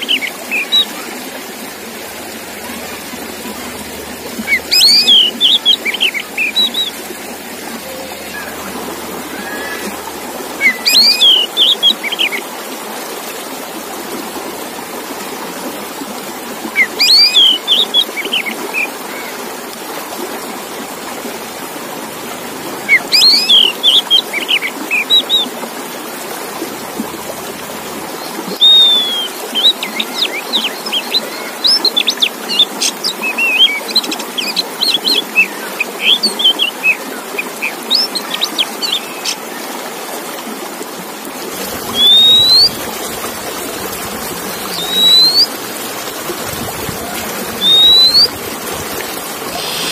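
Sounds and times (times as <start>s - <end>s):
bird singing whistles and chirps: 4.4s - 7.0s, 7.7s - 12.2s, 16.8s - 18.4s, 22.8s - 25.5s, 28.5s - 29.7s, 41.8s - 42.9s, 44.5s - 45.6s, 47.4s - 48.4s.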